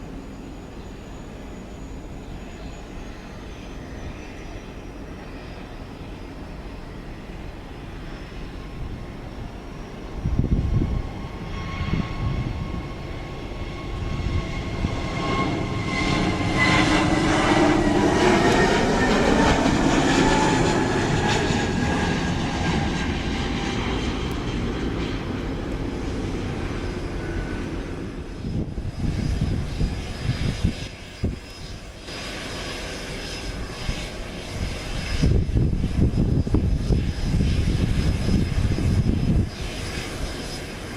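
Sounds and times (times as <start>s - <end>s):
turboprop aircraft passing by: 0.0s - 40.9s.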